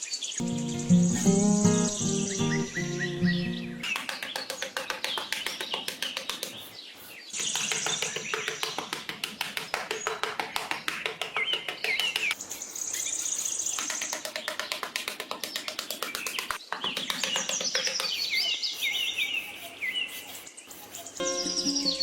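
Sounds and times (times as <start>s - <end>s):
small birds chirping: 0.0s - 22.0s
bird trill: 0.4s - 4.0s, 21.0s - 22.0s.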